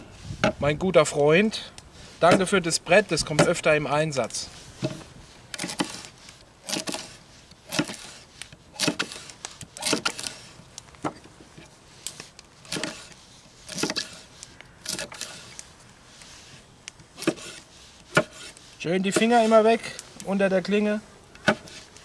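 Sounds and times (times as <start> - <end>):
knife chopping on wooden board: 17.2 - 18.5.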